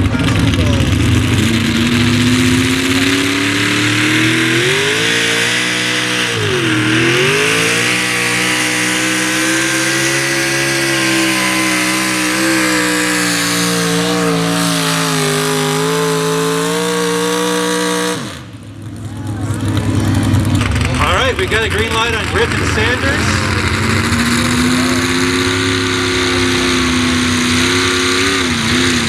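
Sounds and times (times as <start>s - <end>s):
truck engine at full throttle: 0.0s - 29.0s.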